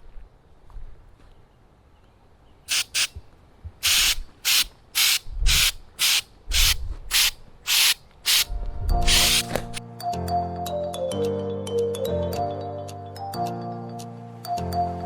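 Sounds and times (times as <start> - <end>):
aerosol can spraying bursts: 2.7 - 3.2, 3.8 - 9.8.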